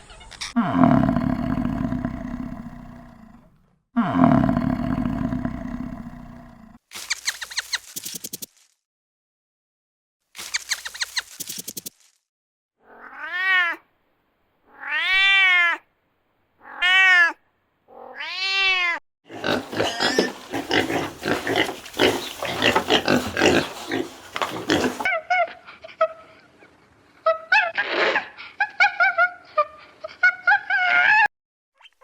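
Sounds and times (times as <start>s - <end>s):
cat meowing: 12.8s - 13.8s.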